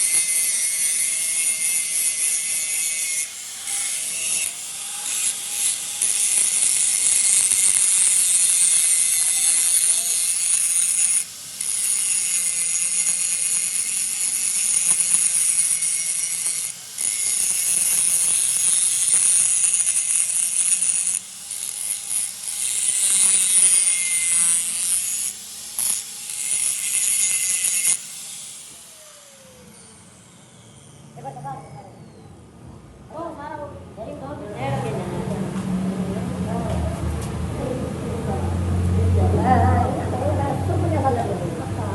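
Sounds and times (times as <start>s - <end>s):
power tool grinding metal: 0.0s - 31.6s.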